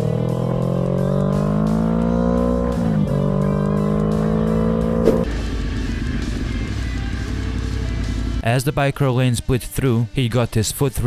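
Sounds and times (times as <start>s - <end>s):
motorcycle engine accelerating: 0.0s - 8.4s
background music: 0.0s - 11.0s.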